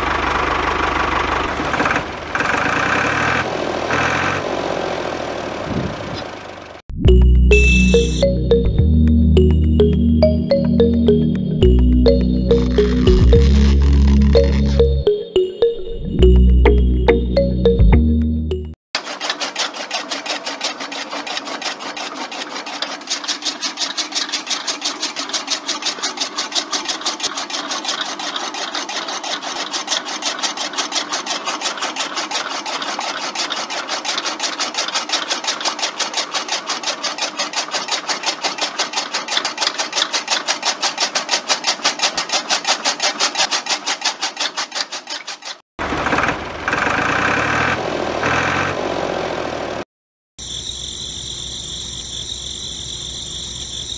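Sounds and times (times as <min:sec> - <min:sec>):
rapid even clicking of cutter: 0:19.0 - 0:45.6.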